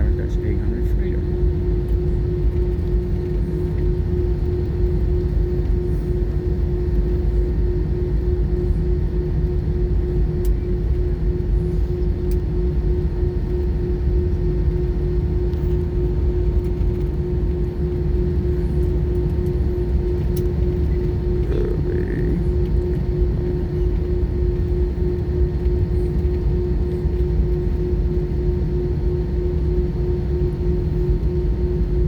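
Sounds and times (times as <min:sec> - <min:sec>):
aircraft cabin engine rumble: 0:00.0 - 0:32.0.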